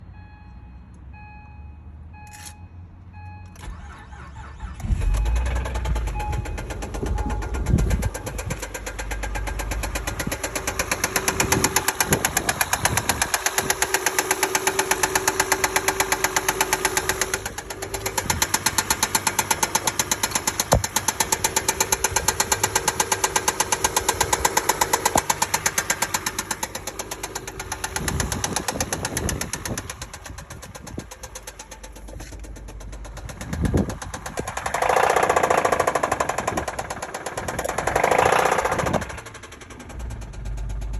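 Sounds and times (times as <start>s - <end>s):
car engine starting and idling: 1.0s - 40.9s
rhythmic engine knocking: 5.0s - 40.9s
car chime: 5.2s - 32.1s.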